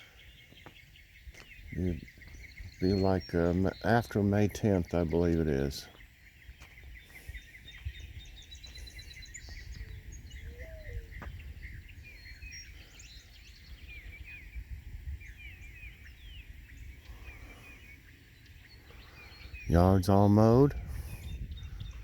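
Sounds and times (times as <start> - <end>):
songbirds chirping and singing: 0.0 - 22.0.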